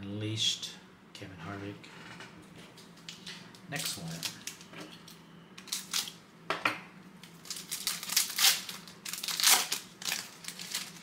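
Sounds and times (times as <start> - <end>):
foil wrapper crinkling and tearing: 3.8 - 4.6, 5.6 - 6.2, 7.2 - 11.0.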